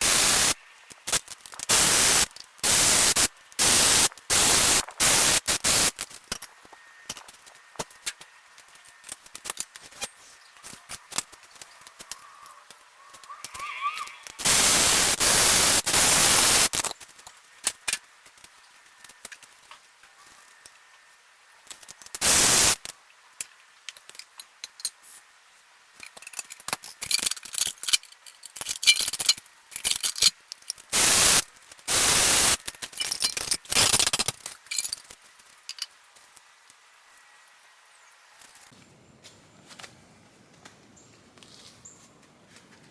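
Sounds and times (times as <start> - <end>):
metallic clinks and rattles: 26.0 - 31.0, 32.6 - 36.5.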